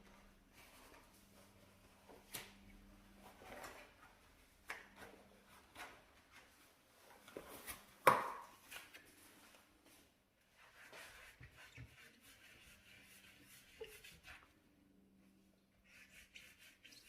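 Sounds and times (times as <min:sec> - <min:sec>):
scrubbing and rubbing: 0:10.5 - 0:14.6, 0:15.8 - 0:17.0.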